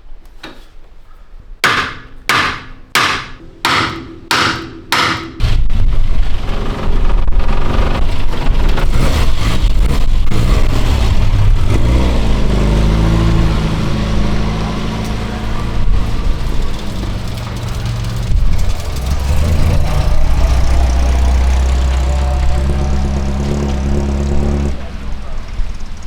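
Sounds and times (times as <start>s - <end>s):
knocks: 1.6s - 5.9s
car engine running loudly: 5.4s - 26.0s.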